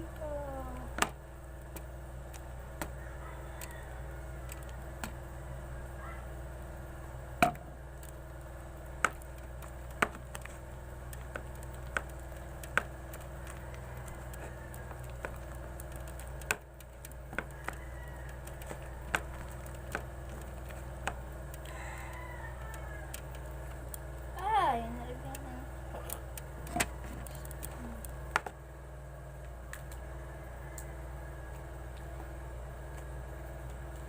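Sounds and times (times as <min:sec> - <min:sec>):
steady low hum: 0:00.0 - 0:34.0
slime clicking and popping: 0:07.4 - 0:24.3.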